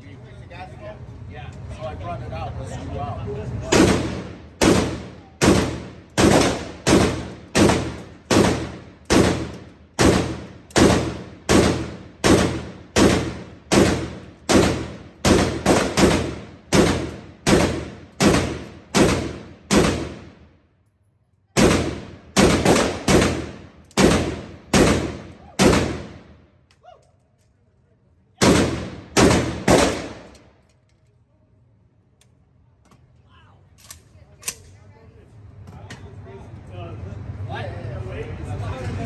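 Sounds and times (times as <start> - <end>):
pistol shots echoing: 3.7 - 20.4, 21.6 - 26.3, 28.4 - 30.4.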